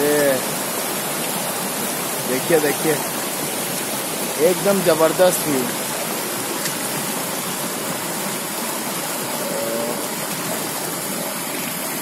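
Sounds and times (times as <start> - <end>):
stream rushing over waterfall: 0.0 - 12.0.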